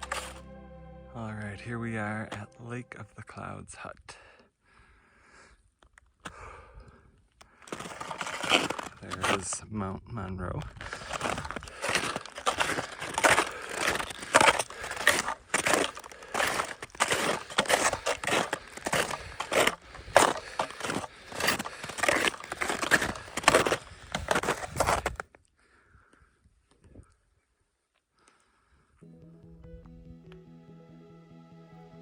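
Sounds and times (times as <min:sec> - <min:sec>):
footsteps crunching in snow: 0:00.0 - 0:00.5, 0:07.7 - 0:09.5, 0:10.7 - 0:25.2.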